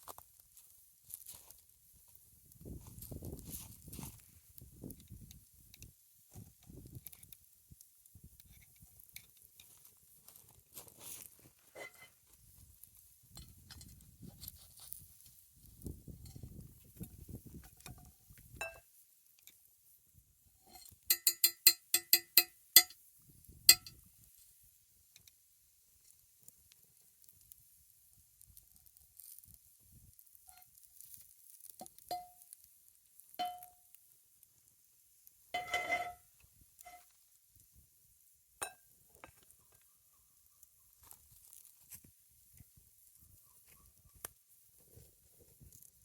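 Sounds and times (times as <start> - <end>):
campfire ticks and pops: 0.0 - 10.7, 12.3 - 20.0, 20.6 - 46.0
utensil clinking on ringing dish: 21.1 - 23.0, 33.4 - 33.8.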